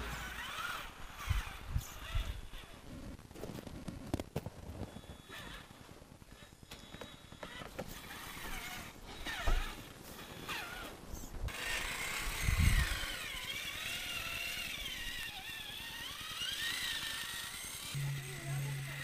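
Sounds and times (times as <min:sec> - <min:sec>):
rc truck electric motor whining: 0:00.0 - 0:02.8, 0:06.4 - 0:19.0.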